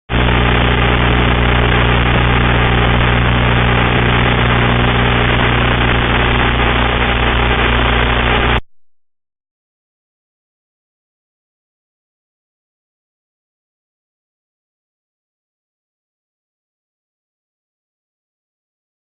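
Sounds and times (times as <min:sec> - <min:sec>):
motor hum: 0:00.1 - 0:08.6.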